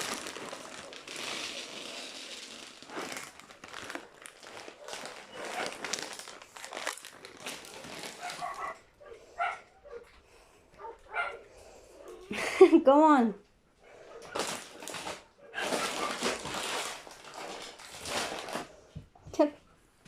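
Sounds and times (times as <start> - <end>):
bag crinkling and rustling: 0.0 - 9.0, 14.2 - 19.0.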